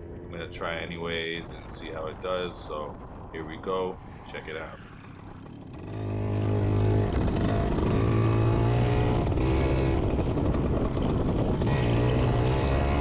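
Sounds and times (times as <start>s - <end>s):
dirt bike engine revving: 5.1s - 13.0s.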